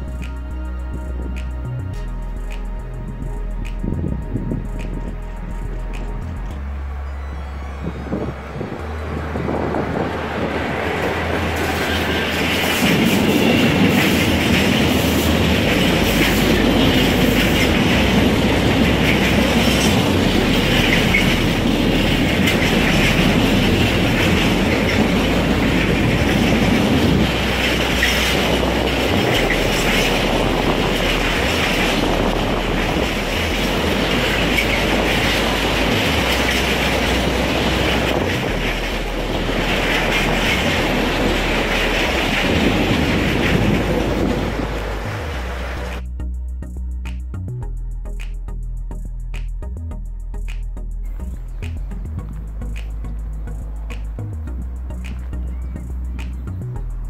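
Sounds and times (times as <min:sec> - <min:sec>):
freight train wheels clattering: 0:08.9 - 0:46.0.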